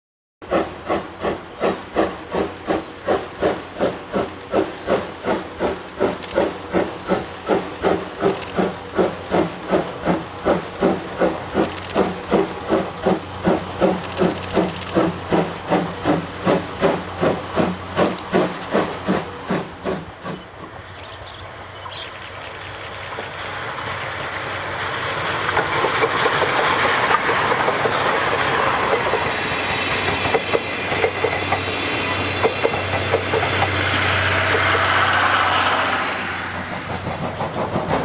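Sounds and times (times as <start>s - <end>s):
steam locomotive exhaust chuffing: 0.4s - 38.0s.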